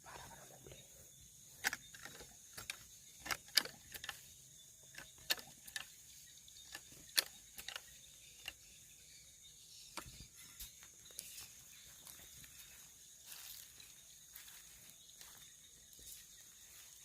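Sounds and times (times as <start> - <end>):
night insects droning: 0.0 - 17.0
sharp clicks and snaps: 4.9 - 5.9, 6.7 - 8.6.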